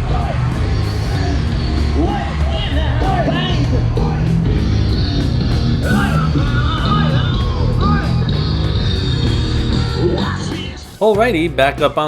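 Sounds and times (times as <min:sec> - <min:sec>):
fast drum beat: 0:00.0 - 0:12.0
person singing: 0:00.0 - 0:12.0
rock band playing: 0:00.0 - 0:12.0.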